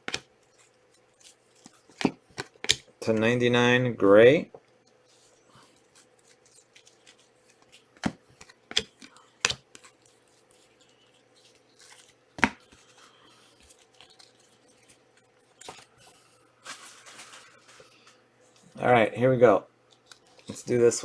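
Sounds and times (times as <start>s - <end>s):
cards snapping and clicking: 0.0s - 0.3s, 7.1s - 10.0s
light rustling of packs: 4.7s - 18.9s.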